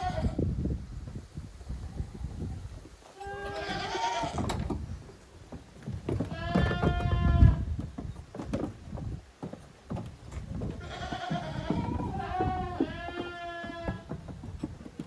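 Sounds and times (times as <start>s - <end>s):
goat kids bleating: 3.2s - 4.5s, 6.2s - 7.7s, 10.8s - 14.2s.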